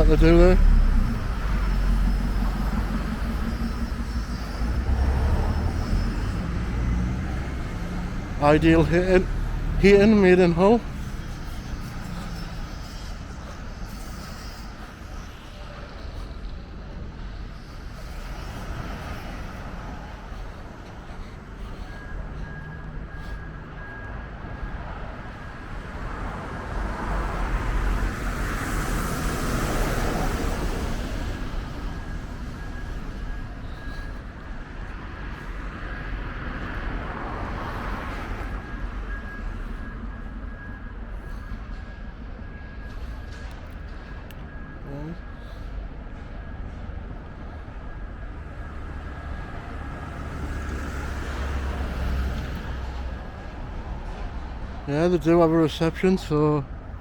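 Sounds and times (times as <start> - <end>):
vehicle passing by: 0.0 - 14.2, 48.6 - 56.5
faint high whine: 0.0 - 57.0
road traffic rumble: 0.0 - 57.0.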